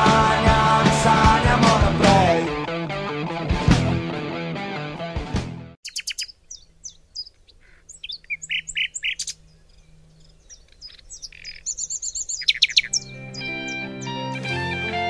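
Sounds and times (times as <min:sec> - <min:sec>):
small birds chirping: 0:05.8 - 0:14.3.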